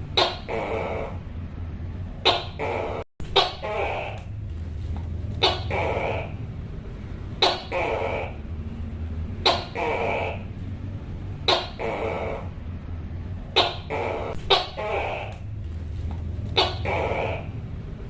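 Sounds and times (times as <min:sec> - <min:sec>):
steady low hum: 0:00.0 - 0:18.0
gecko calling: 0:00.1 - 0:01.2, 0:02.2 - 0:04.4, 0:05.4 - 0:06.5, 0:07.4 - 0:08.6, 0:09.4 - 0:10.6, 0:11.4 - 0:12.6, 0:13.5 - 0:15.6, 0:16.4 - 0:17.7.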